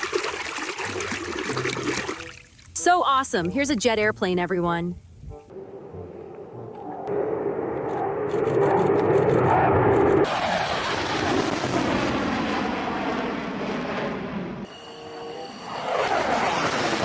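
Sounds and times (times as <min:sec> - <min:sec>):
jet airplane engine: 0:05.6 - 0:17.0.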